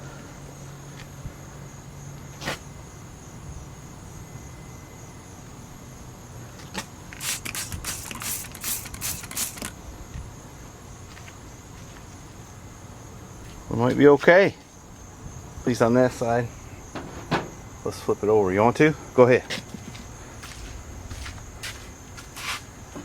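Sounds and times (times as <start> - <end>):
crickets droning: 0.0 - 23.0
hissy rustling noises: 6.6 - 10.3, 19.4 - 23.0.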